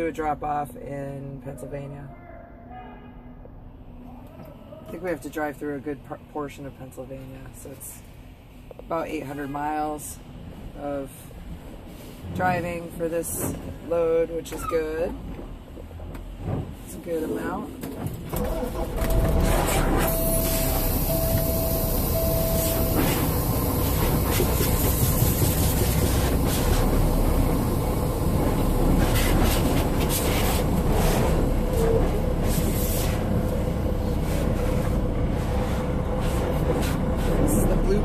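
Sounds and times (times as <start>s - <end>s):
short electronic beeps: 20.0s - 23.4s
high-pressure water spraying: 20.0s - 33.3s.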